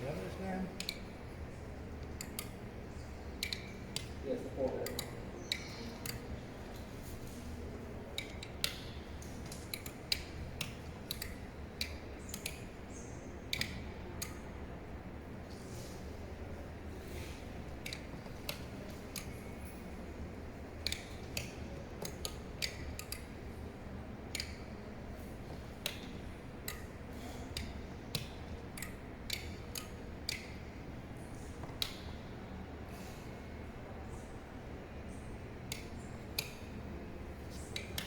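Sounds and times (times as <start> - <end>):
low steady hum: 0.0 - 38.0
sharp clicks: 0.7 - 1.2, 2.0 - 6.9, 8.1 - 14.4, 20.7 - 23.6, 24.2 - 24.8, 35.6 - 36.9, 37.5 - 38.0.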